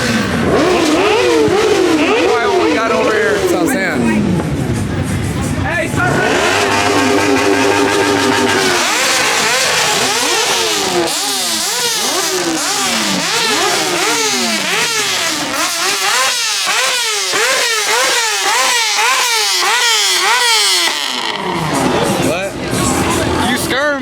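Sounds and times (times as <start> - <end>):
car engine revving hard: 0.0 - 5.0, 5.7 - 24.0.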